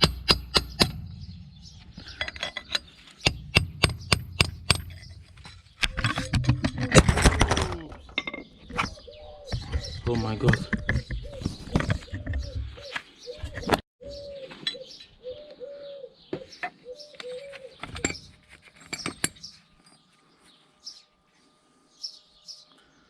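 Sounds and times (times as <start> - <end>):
tools clinking on metal: 2.0 - 7.3, 8.1 - 8.5
dove cooing: 7.6 - 18.1.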